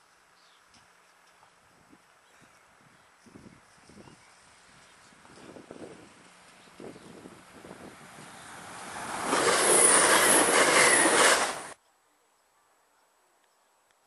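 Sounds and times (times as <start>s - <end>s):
train wheels rushing on rails: 4.8s - 11.8s
high-pitched wheel squeals: 9.3s - 11.7s.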